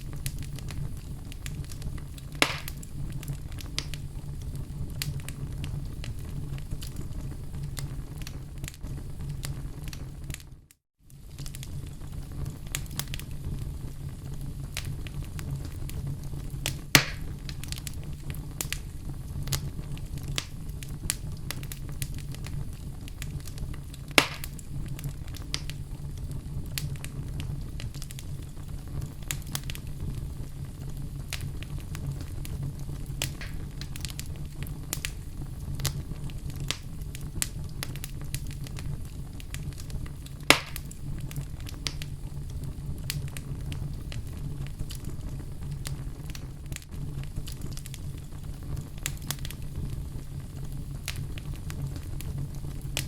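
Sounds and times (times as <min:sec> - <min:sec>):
low fire rumble: 0:00.0 - 0:53.0
wood fire crackling: 0:00.0 - 0:53.0
logs popping: 0:00.2 - 0:04.0, 0:16.6 - 0:18.0, 0:23.2 - 0:24.6, 0:33.2 - 0:34.3, 0:40.4 - 0:41.0.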